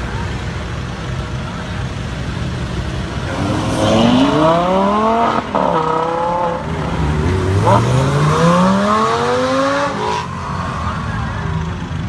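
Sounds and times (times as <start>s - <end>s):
car engine revving and accelerating: 3.1s - 11.2s.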